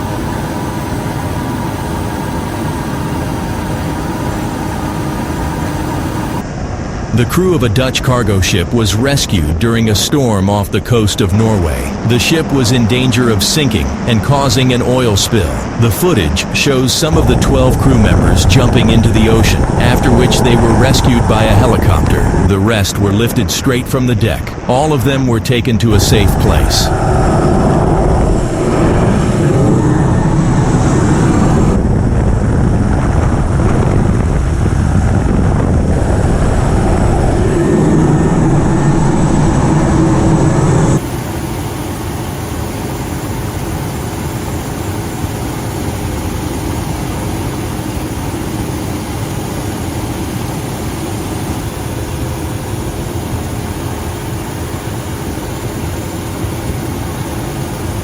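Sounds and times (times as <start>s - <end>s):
helicopter rotor and engine: 0.0s - 58.0s
steady mechanical hum: 0.0s - 58.0s
wind noise: 11.9s - 23.5s, 25.8s - 41.1s.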